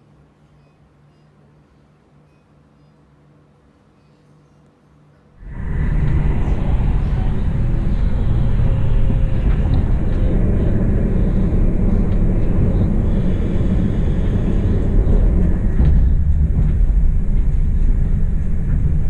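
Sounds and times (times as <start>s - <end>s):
train wheels rumbling on rails: 5.4s - 19.0s.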